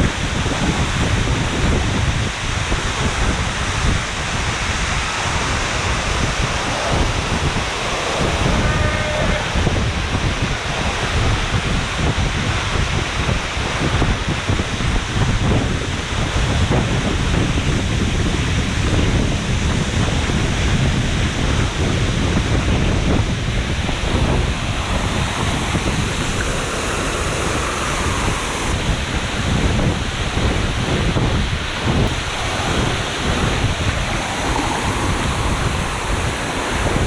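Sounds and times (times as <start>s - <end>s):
waterfall rushing: 0.0s - 14.0s, 23.0s - 30.3s, 31.6s - 37.0s
wind buffeting microphone: 0.0s - 37.0s.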